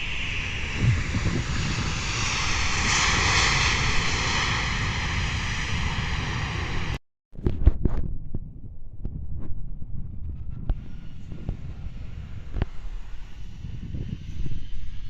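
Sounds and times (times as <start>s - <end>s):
airplane engines passing: 0.0s - 7.0s, 10.7s - 15.0s.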